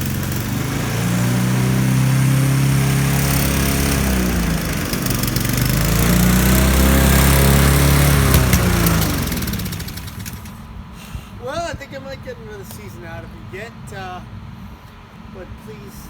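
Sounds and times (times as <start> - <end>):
lawn mower engine running: 0.0 - 10.8.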